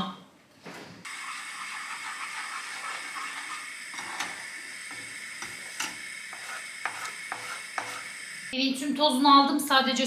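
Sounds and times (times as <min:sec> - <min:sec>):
eggs sizzling in pan: 0:01.0 - 0:08.6.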